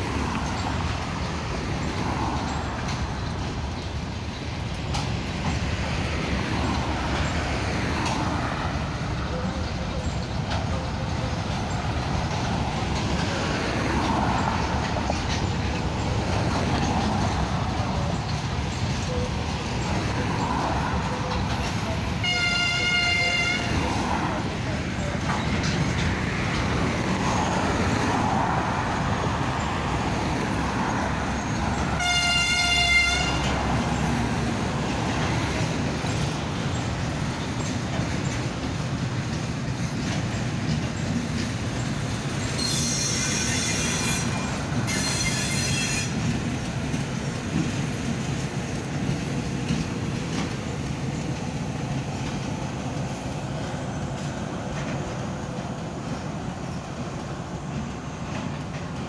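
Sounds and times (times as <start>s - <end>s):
train rumbling past: 0.0s - 59.0s
higher-pitched horn blasts: 22.2s - 23.8s, 32.0s - 33.5s
locomotive horn: 22.2s - 24.0s, 31.9s - 33.8s.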